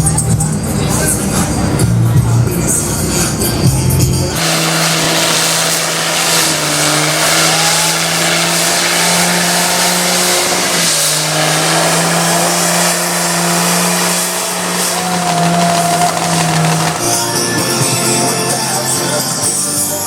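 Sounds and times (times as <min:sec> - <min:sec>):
vehicle engine at high revs: 0:00.0 - 0:18.9
wide hiss: 0:04.3 - 0:17.6.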